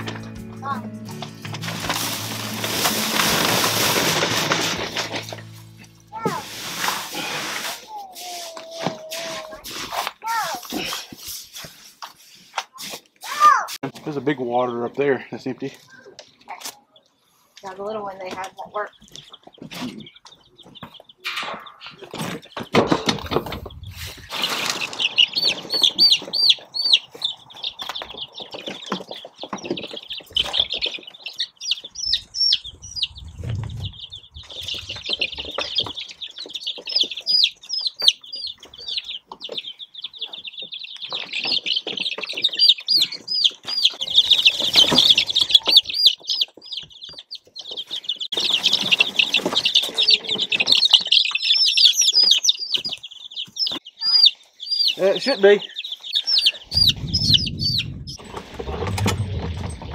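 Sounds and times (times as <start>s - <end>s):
chicks peeping: 0.1s - 13.0s, 14.0s - 59.9s
handling knocks and rustles: 1.1s - 7.2s, 20.6s - 26.3s, 56.8s - 59.9s.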